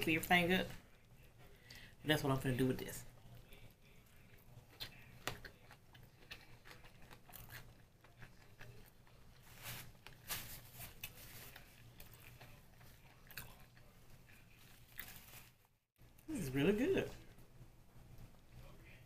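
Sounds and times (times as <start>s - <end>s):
person chewing food: 3.2s - 10.2s, 11.0s - 15.5s.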